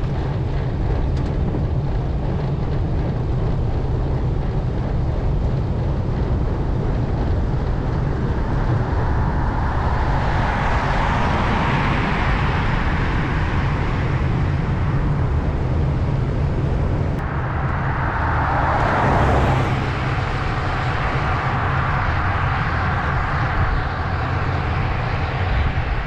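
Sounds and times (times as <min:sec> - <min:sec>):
road traffic rumble: 0:00.0 - 0:26.0
vehicle passing by: 0:07.1 - 0:26.0.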